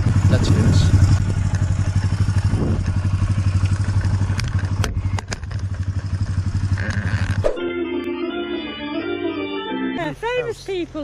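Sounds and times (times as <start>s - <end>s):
motorcycle engine running: 0.0s - 7.6s
music: 7.6s - 10.4s.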